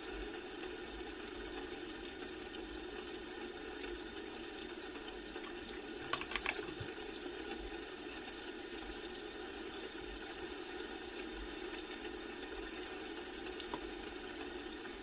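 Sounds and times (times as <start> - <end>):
keyboard keystrokes: 6.0 - 6.9.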